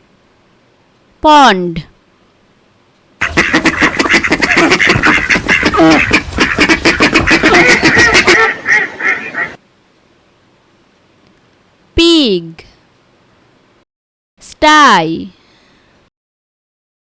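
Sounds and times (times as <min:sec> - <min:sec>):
ducks quacking: 0:03.2 - 0:09.6.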